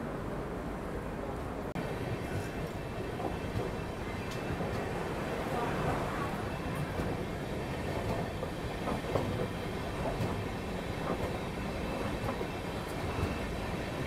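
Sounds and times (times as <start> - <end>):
train wheels rumbling on rails: 0.4 - 14.0.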